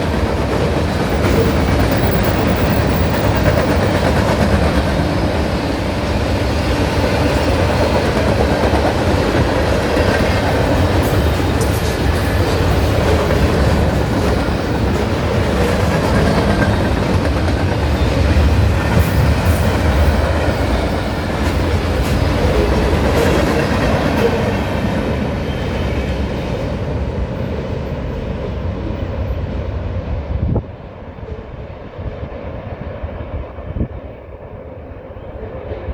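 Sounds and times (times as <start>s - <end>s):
wheels clacking over rail joints: 0.0s - 26.8s
freight train rumbling past: 0.0s - 35.9s.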